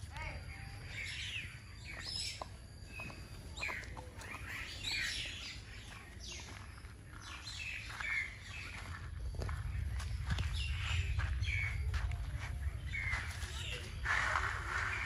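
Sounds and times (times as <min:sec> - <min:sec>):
birds chirping: 0:00.0 - 0:15.0
low steady rumble: 0:08.4 - 0:15.0.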